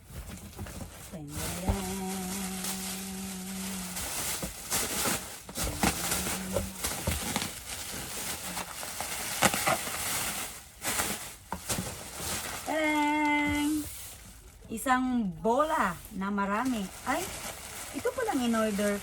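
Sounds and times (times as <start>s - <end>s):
packaging rustling and crinkling: 0.0s - 14.9s, 15.6s - 19.0s
person humming: 1.2s - 4.2s, 5.6s - 7.1s.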